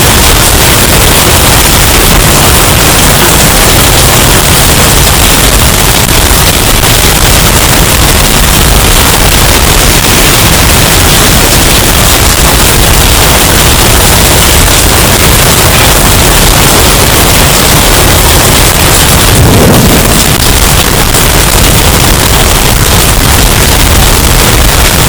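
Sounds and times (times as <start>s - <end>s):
distorted hurricane wind: 0.0s - 25.0s.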